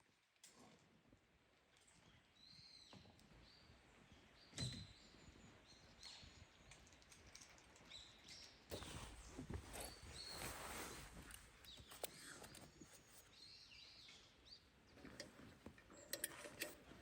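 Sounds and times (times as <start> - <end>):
faint bird chirps: 7.9 - 15.2.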